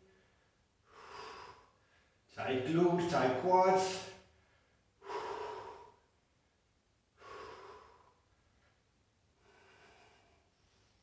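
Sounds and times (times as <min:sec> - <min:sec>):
person breathing hard: 0:00.0 - 0:02.3, 0:04.2 - 0:06.4, 0:07.1 - 0:08.7, 0:09.3 - 0:11.0.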